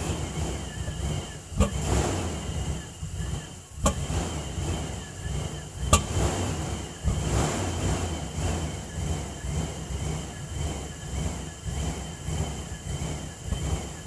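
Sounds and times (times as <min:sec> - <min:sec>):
van engine idling: 0:00.0 - 0:14.0.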